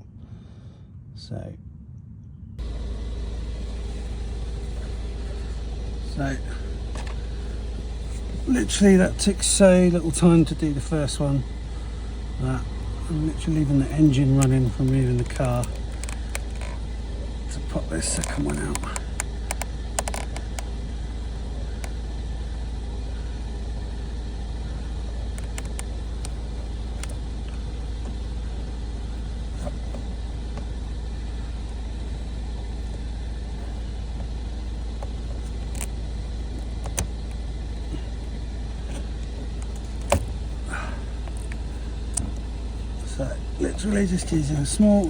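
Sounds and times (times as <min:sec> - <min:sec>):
car engine idling: 0:02.6 - 0:45.0
sharp clicks and taps: 0:18.1 - 0:20.7, 0:25.4 - 0:26.4.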